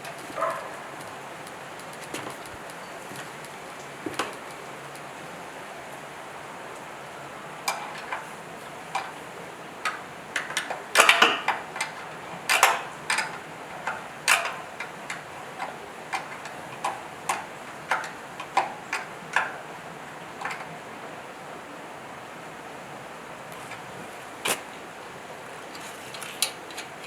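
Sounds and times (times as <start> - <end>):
sharp irregular clicks and taps: 0.0 - 3.6
steady background hiss: 0.0 - 27.0.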